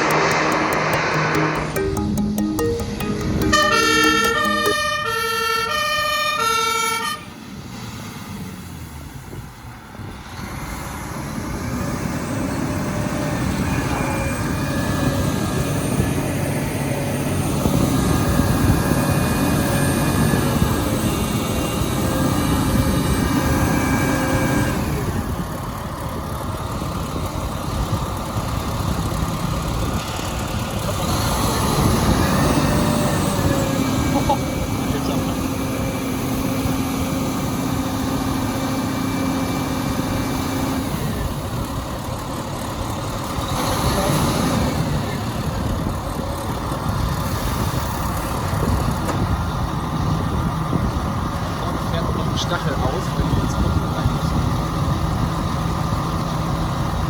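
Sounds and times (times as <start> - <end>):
music with piano-like notes: 0.0 - 5.2
heavy engine rumble: 44.8 - 57.0.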